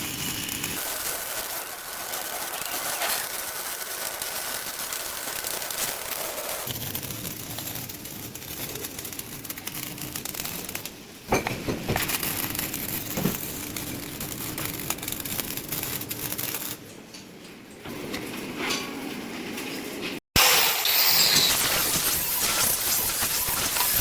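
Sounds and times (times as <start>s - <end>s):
welding arc crackling: 0.0s - 16.9s, 20.6s - 24.0s
welding arc pop: 6.6s - 16.8s.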